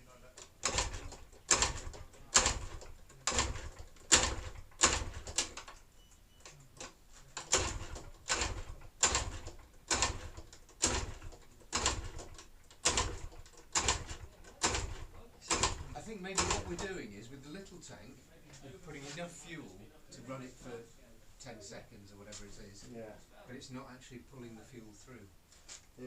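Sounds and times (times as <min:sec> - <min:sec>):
motorcycle engine turning over: 0:00.6 - 0:05.6, 0:07.5 - 0:16.9.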